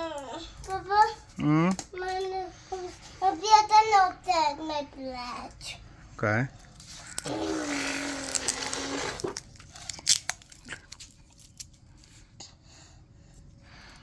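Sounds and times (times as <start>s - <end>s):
crinkling and clicking handling noises: 8.3s - 12.2s.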